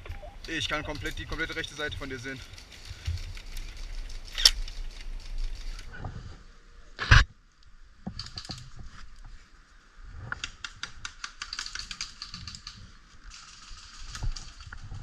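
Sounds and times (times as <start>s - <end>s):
rapid clicking and rustling: 0.0s - 6.0s, 8.0s - 9.0s, 10.3s - 15.0s.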